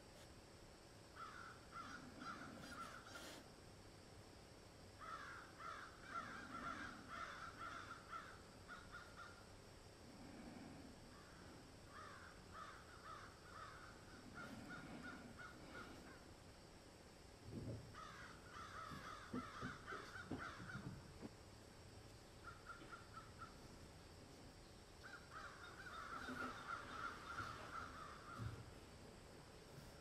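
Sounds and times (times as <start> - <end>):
crows cawing: 1.2 - 3.3, 5.0 - 9.4, 10.2 - 16.3, 17.9 - 21.1, 22.4 - 23.6, 25.0 - 28.7.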